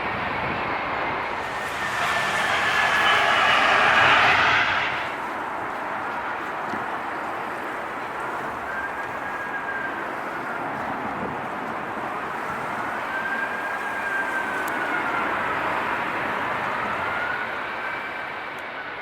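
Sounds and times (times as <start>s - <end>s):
jet airliner engines roaring: 0.0s - 19.0s.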